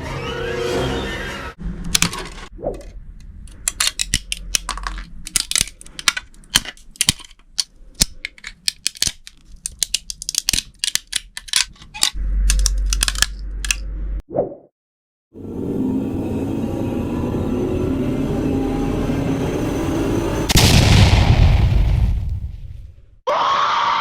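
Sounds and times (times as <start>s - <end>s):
low hum: 15.4s - 21.0s.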